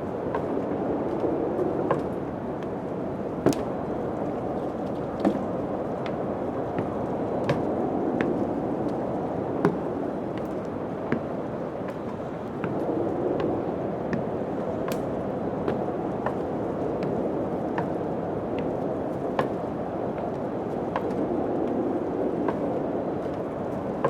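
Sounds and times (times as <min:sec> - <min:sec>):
wind-like rushing noise: 0:00.0 - 0:24.0
sharp knocks and clicks: 0:03.4 - 0:03.7.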